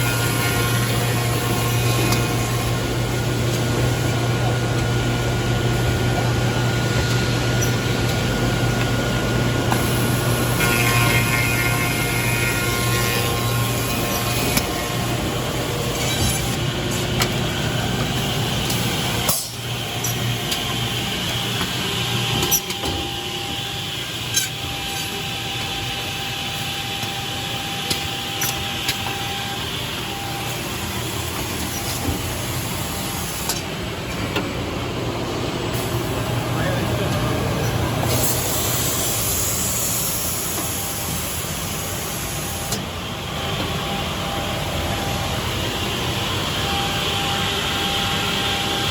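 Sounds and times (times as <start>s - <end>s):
machine low hum: 0.0s - 48.9s.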